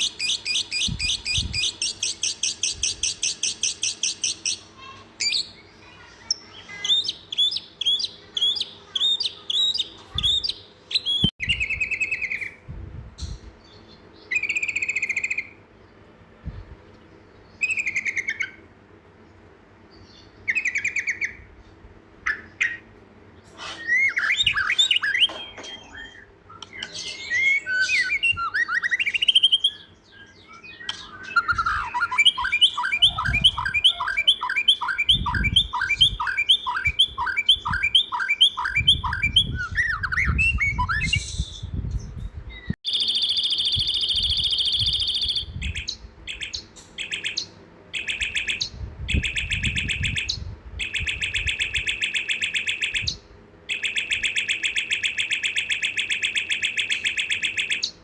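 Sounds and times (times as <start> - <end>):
songbirds chirping: 0.0 - 58.0
high buzzy bird call: 22.2 - 41.9.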